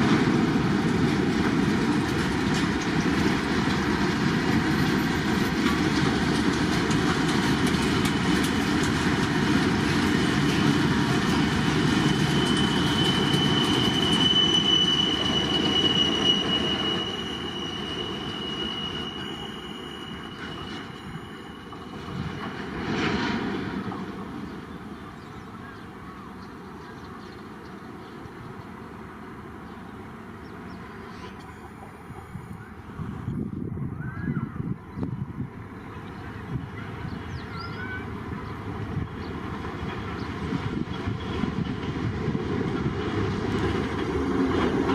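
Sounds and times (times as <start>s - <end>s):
train wheels rumbling on rails: 0.0s - 44.9s
high-pitched wheel squeal: 11.6s - 22.3s.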